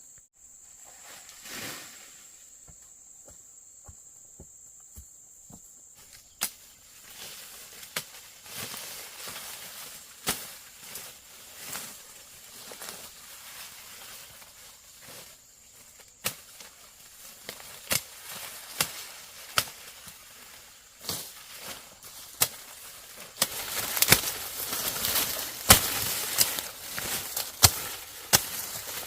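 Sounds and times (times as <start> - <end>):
dry leaves rustling: 6.1 - 29.0
corn stalks snapping: 6.4 - 6.6, 7.7 - 12.0, 16.2 - 29.0.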